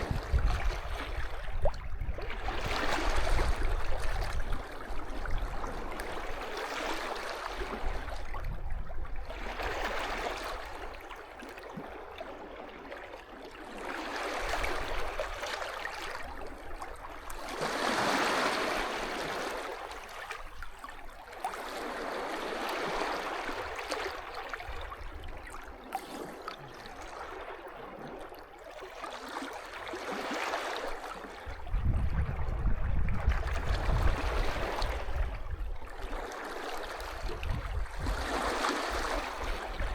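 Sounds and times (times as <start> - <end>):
wind buffeting microphone: 0.0 - 6.4, 7.7 - 9.6, 31.4 - 36.1, 37.1 - 39.9
sea waves washing onto beach: 13.7 - 20.5.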